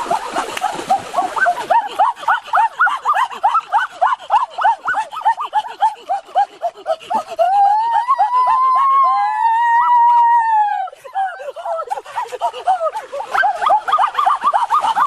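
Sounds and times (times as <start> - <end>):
long held cry: 1.5 - 14.1.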